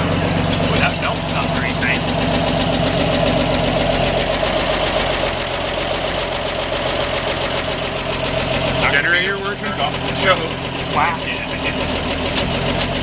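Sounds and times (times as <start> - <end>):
fast even engine ticking: 0.0 - 13.0
truck engine idling: 0.0 - 13.0.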